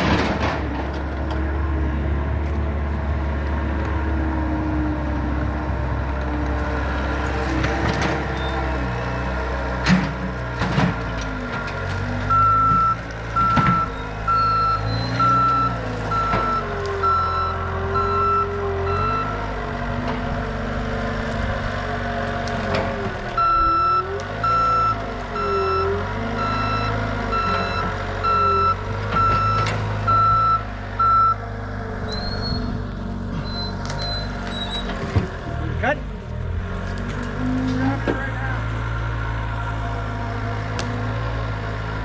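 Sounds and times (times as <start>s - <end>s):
diesel engine running: 0.0s - 42.0s
vehicle backup alarm beeping: 12.2s - 19.5s, 23.4s - 31.4s, 33.4s - 34.9s.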